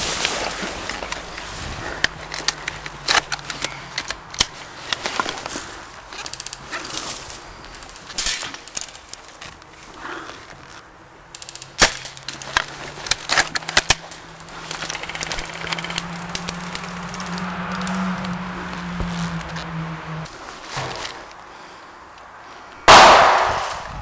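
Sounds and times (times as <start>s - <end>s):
airsoft guns firing: 22.9s - 23.9s.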